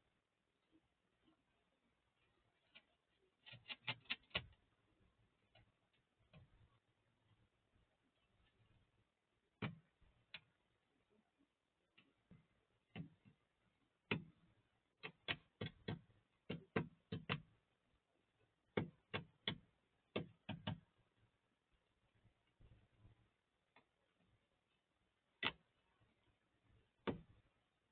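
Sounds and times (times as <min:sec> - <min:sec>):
birds pecking at food: 0:02.7 - 0:04.6.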